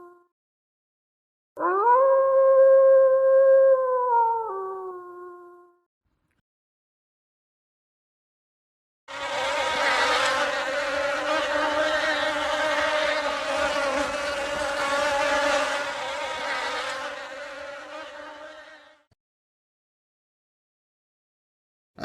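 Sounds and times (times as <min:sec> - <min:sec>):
flying insect buzzing: 0:09.1 - 0:19.1.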